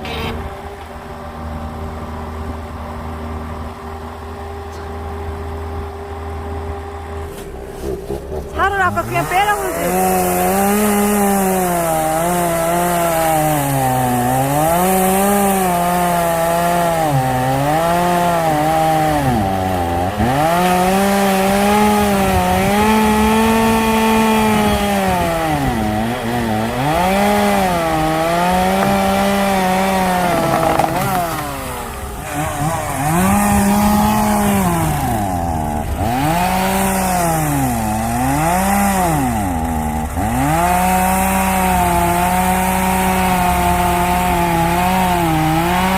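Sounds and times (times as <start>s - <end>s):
chainsaw cutting logs: 0.0s - 45.9s.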